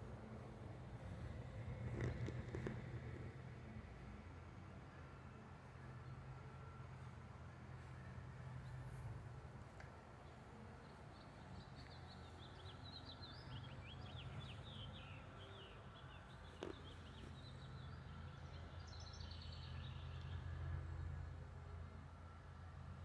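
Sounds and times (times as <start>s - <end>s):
songbird chirping: 9.7s - 21.1s.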